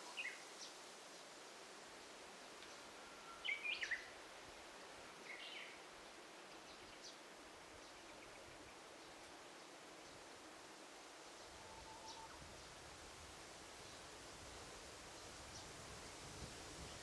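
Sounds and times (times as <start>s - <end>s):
songbird singing: 0.0s - 1.4s, 2.4s - 13.0s, 15.1s - 15.9s
faint steady hiss: 0.0s - 17.0s
faint distant bird chirps: 2.6s - 10.2s, 11.2s - 12.8s.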